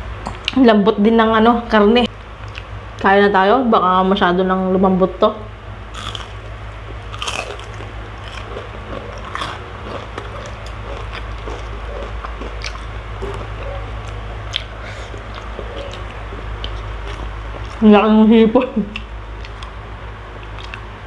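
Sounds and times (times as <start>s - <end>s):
crunching and chewing: 2.4s - 2.7s, 5.9s - 17.8s, 18.9s - 21.0s.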